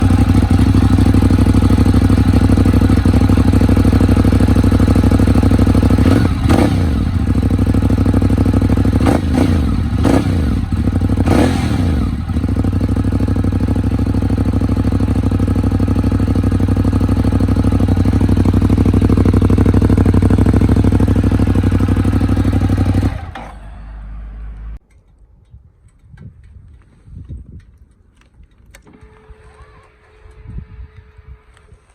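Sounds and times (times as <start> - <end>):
motorcycle engine idling: 0.0 - 23.8
motorcycle engine revving: 0.0 - 24.8.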